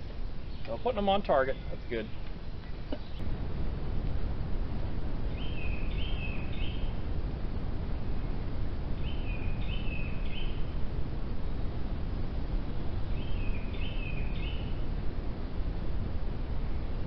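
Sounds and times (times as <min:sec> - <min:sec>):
low outdoor background rumble: 0:00.0 - 0:17.0
songbird calling: 0:00.4 - 0:03.2, 0:05.3 - 0:07.0, 0:09.0 - 0:10.8, 0:13.1 - 0:14.8.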